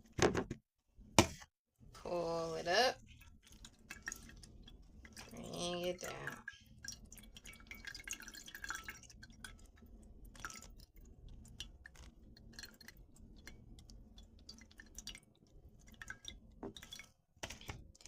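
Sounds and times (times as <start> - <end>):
juice dripping into bowl: 3.0 - 18.0
wet squishing of pulp: 3.0 - 18.0.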